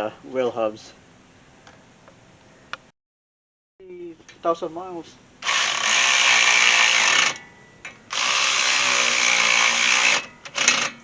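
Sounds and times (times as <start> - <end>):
power tool driving bolts: 5.4 - 11.0.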